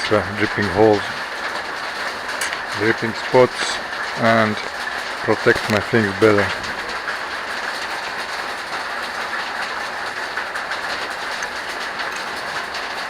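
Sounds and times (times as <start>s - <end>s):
faint water drips and splashes: 0.0s - 13.0s
waterfall rushing: 0.0s - 13.0s.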